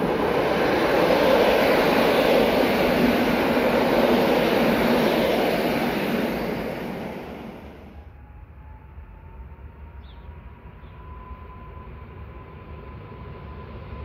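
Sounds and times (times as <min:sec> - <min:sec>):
train wheels on rails: 0:00.0 - 0:08.0.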